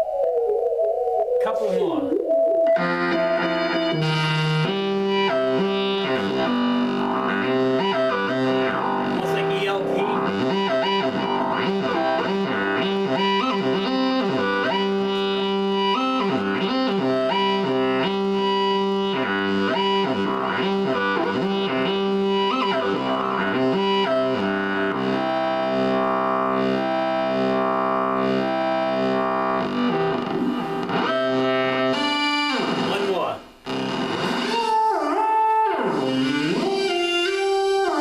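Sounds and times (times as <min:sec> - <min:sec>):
theremin tone gliding between notes: 0:00.0 - 0:09.2.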